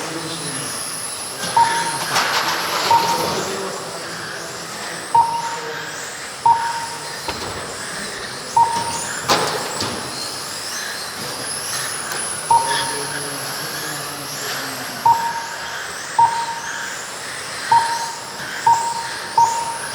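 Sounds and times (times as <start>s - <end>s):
rc car motors whining: 0.0s - 19.9s
short electronic beeps: 1.4s - 4.4s, 5.0s - 9.6s, 12.4s - 13.9s, 14.5s - 19.9s.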